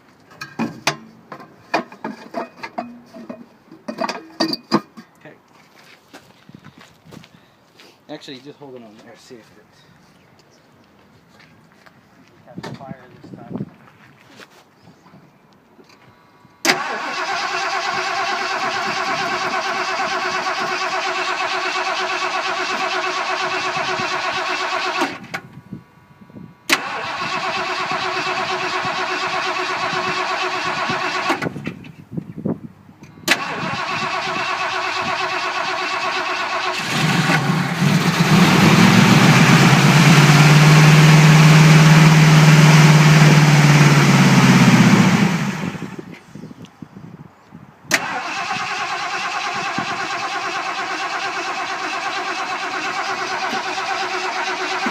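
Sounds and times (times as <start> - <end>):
starter motor cranking engine: 16.7 - 25.3, 26.7 - 31.6, 33.2 - 46.0, 47.9 - 54.9.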